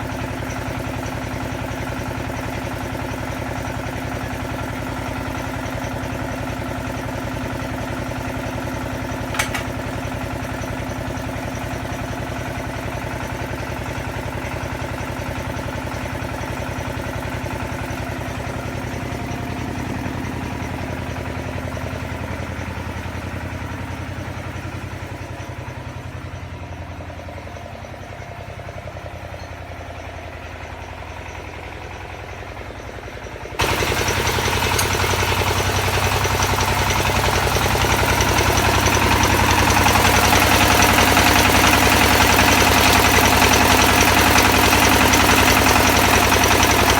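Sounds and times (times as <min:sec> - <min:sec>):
drilling rig engine running: 0:00.0 - 0:46.9
sharp click: 0:09.3 - 0:09.8.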